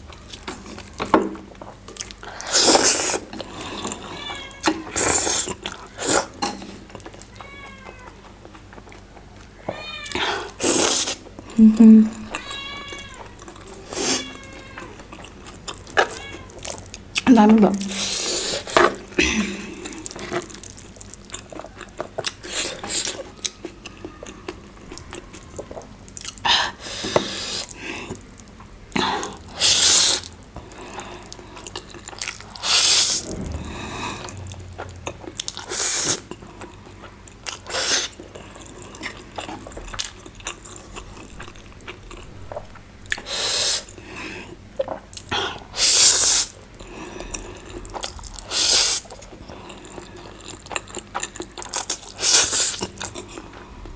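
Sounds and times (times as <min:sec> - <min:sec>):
wet chewing and mouth smacking: 0:00.1 - 0:11.6, 0:12.2 - 0:33.6, 0:34.7 - 0:53.9
loud slurps: 0:02.4 - 0:03.3, 0:32.5 - 0:36.4, 0:42.5 - 0:44.5, 0:45.8 - 0:46.6, 0:48.4 - 0:49.1, 0:52.2 - 0:53.0.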